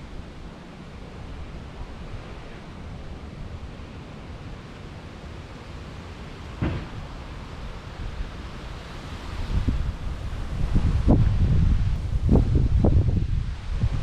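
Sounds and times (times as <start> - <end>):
leaves rustling: 0.0 - 14.0
gusty wind on microphone: 6.3 - 14.0
loud thump: 6.6 - 7.0.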